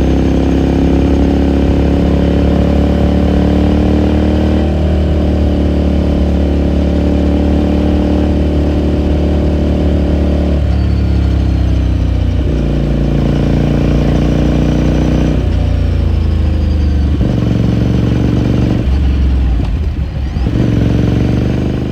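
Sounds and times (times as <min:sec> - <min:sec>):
motorcycle engine running: 0:00.0 - 0:21.9.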